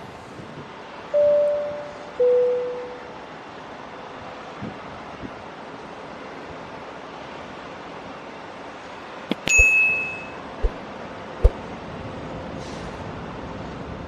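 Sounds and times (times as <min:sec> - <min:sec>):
steady rushing noise: 0:09.3 - 0:12.0
metallic ding: 0:09.4 - 0:10.4.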